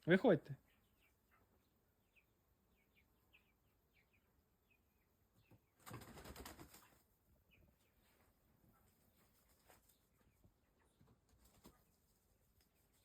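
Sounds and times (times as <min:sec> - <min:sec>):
chicken flapping wings: 0:05.8 - 0:07.0, 0:11.2 - 0:13.0.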